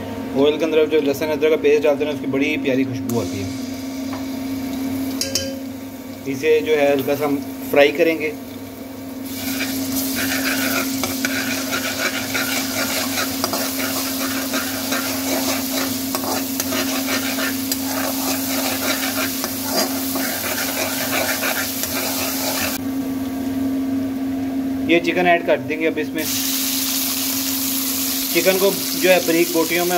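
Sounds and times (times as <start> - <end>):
paste sizzling in hot fat: 6.7 - 22.8, 26.2 - 29.9
metal spatula scraping a pan: 9.3 - 22.8.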